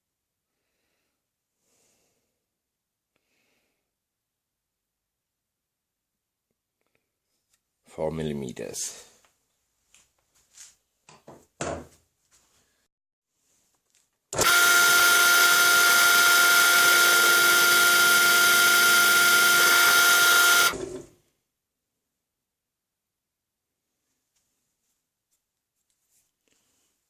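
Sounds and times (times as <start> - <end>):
electric drill running: 14.4 - 21.1.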